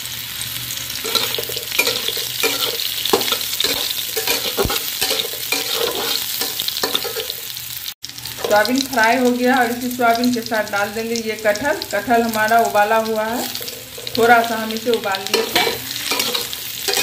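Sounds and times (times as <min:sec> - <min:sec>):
food sizzling in hot oil: 0:00.0 - 0:17.0
spatula scraping pan: 0:01.0 - 0:07.5, 0:13.4 - 0:17.0.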